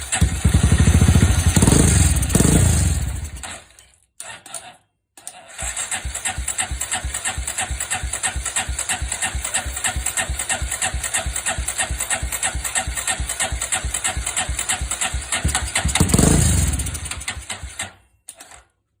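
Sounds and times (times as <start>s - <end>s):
motorcycle engine idling and revving: 0.0s - 3.7s, 5.5s - 18.0s
small click: 18.3s - 18.7s.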